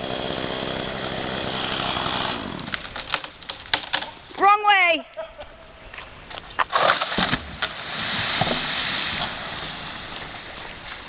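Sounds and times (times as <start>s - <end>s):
tree trunk cracking: 1.7s - 4.2s, 6.5s - 11.0s
crash of branches and leaves: 6.6s - 11.0s.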